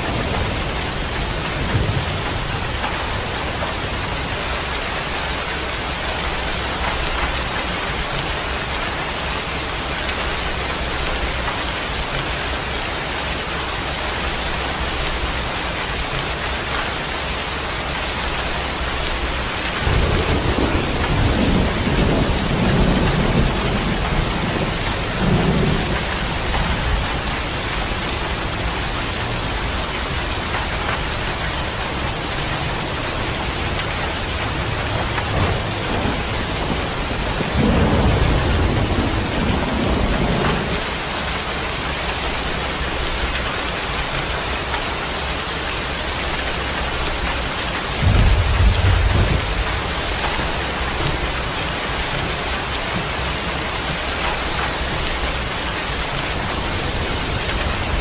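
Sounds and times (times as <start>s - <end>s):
steady rain: 0.0s - 58.0s
thunder rolling: 19.8s - 29.4s, 32.6s - 41.0s, 47.9s - 51.4s.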